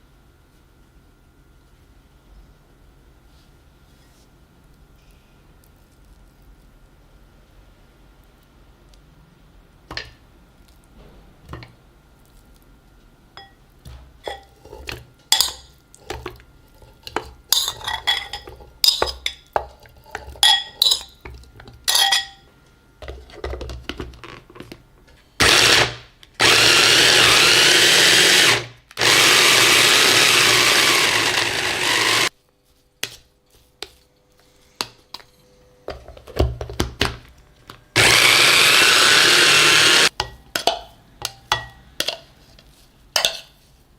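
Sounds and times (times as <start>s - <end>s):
electric blender running: 25.4s - 32.3s, 38.0s - 40.1s.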